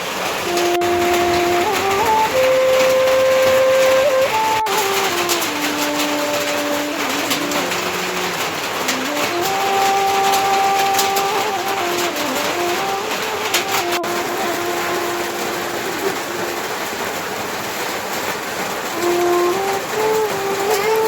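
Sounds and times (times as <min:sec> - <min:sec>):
rain hiss: 0:00.0 - 0:21.0
motor humming: 0:00.4 - 0:17.2.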